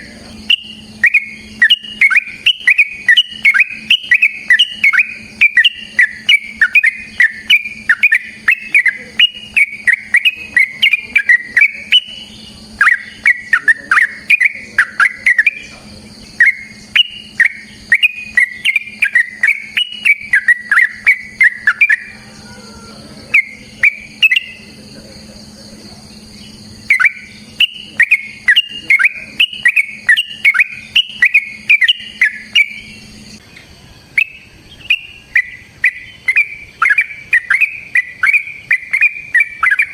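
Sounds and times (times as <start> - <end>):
bird singing rapid chattering notes: 0.0 - 39.9.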